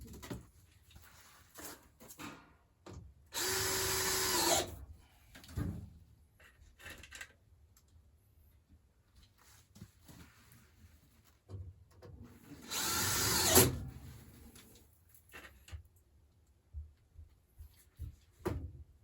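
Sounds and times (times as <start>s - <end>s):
power drill driving screw: 3.4s - 4.8s, 12.6s - 13.8s.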